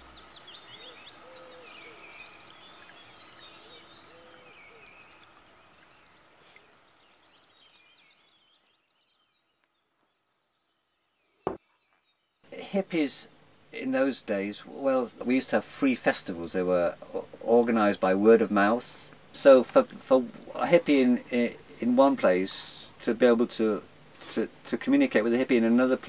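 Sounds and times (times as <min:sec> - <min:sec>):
birds chirping and singing: 0:00.0 - 0:15.4.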